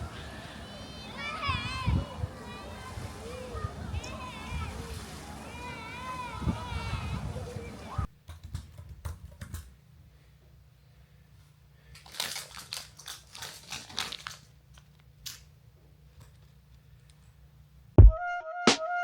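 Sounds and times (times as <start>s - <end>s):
handling rustling and clicking: 11.9s - 17.4s.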